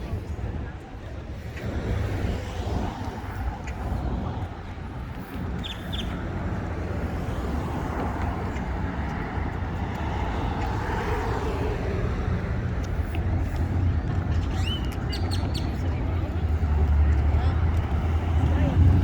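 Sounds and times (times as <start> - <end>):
low traffic rumble: 0.0 - 19.0
car passing by: 6.7 - 13.9.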